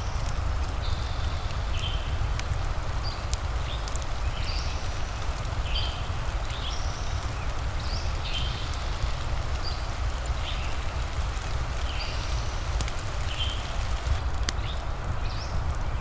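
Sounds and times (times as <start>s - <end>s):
fireplace crackles: 0.0s - 16.0s
steady rain: 0.0s - 16.0s
bird chirps: 3.1s - 15.5s.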